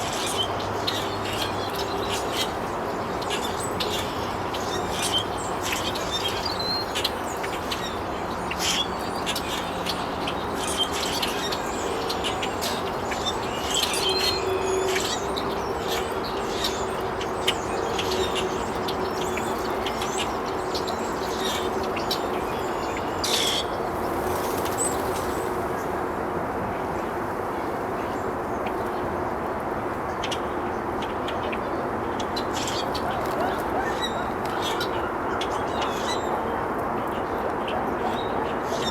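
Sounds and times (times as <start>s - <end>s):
steady background noise: 0.0s - 38.9s.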